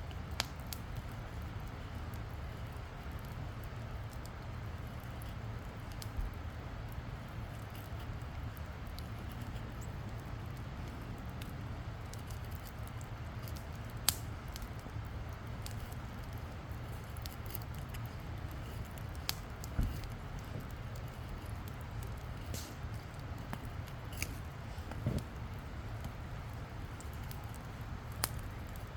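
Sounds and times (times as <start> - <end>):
campfire crackling: 0.0 - 28.9
sharp fire pops: 12.9 - 14.9, 16.8 - 28.8.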